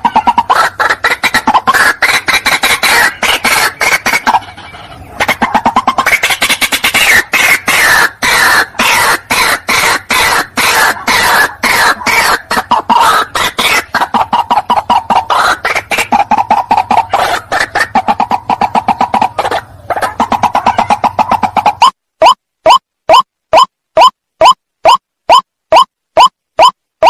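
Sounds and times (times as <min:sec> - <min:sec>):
waterhen harsh calls: 0:00.0 - 0:26.7.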